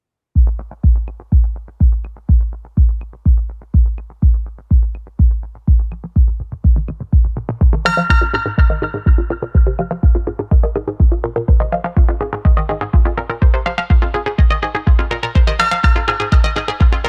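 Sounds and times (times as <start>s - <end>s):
heavy bass kick drum: 0.4s - 17.0s
bright synth chord and melody: 7.9s - 17.0s.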